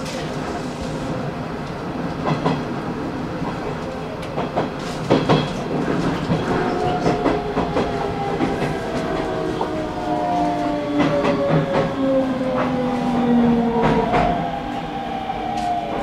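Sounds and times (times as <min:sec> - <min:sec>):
electric train rolling: 0:04.2 - 0:16.0.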